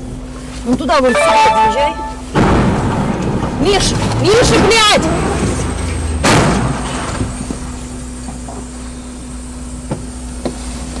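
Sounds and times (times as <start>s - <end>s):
car interior rumble: 0.0s - 11.0s
loud bang: 2.0s - 7.4s.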